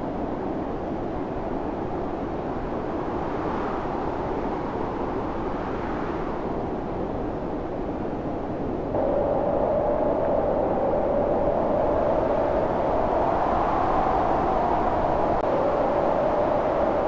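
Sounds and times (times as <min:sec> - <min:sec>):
storm wind blowing: 0:08.7 - 0:17.0.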